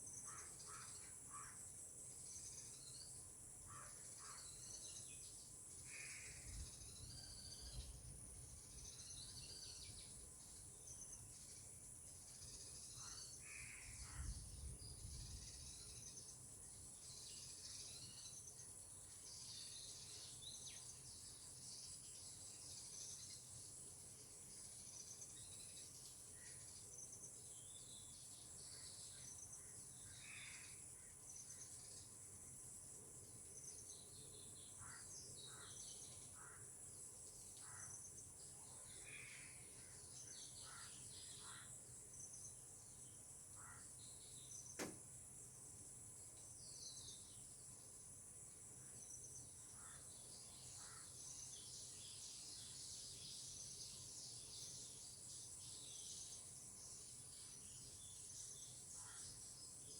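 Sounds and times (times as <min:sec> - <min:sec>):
insects droning: 0:00.0 - 0:59.9
sharp click: 0:44.8 - 0:45.0.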